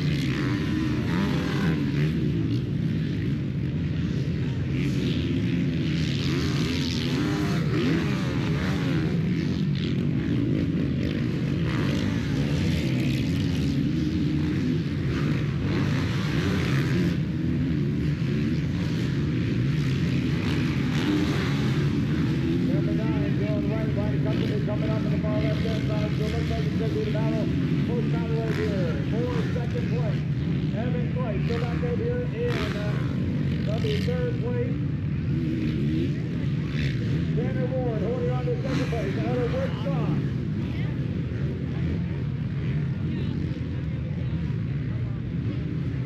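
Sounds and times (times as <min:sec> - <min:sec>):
motocross bikes revving: 0:00.0 - 0:46.0.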